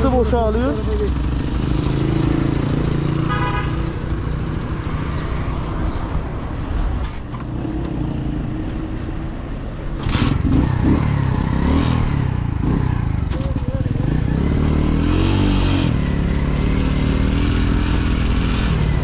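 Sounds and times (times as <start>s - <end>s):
motorcycle engine running: 0.0s - 5.1s, 10.0s - 15.0s
horn toot: 3.2s - 4.0s.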